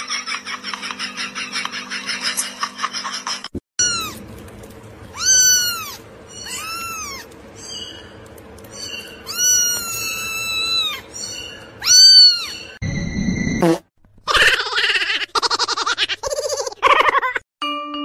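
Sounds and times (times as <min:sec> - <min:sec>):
kitten meowing: 0:03.8 - 0:04.2, 0:05.2 - 0:07.3, 0:09.2 - 0:12.6.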